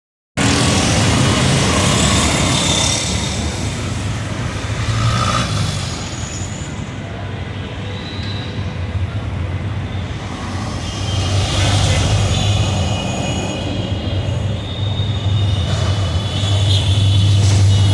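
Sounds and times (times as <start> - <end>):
road traffic: 0.4 - 17.9.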